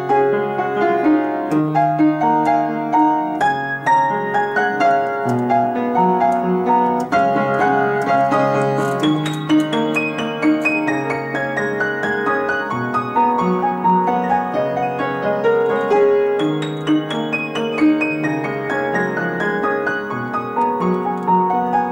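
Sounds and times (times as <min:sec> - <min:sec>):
solo piano melody: 0:00.0 - 0:21.9.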